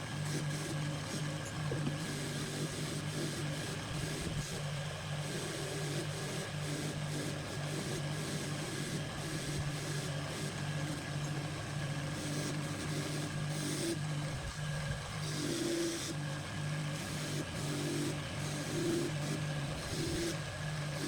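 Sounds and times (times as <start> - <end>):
motor humming: 9.0 - 21.0.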